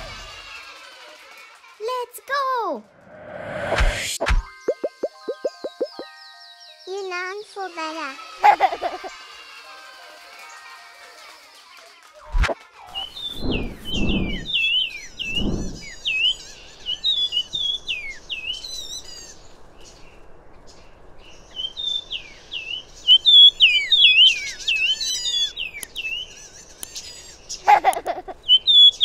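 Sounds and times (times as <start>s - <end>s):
bird calling high chirps: 4.5s - 6.2s, 13.0s - 19.4s, 21.5s - 29.0s.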